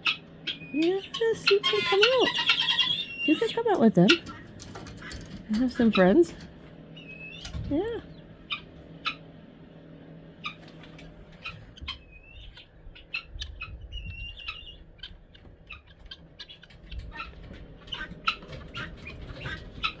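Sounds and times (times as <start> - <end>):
guineafowl chip calls: 0.0 - 9.4, 10.4 - 20.0.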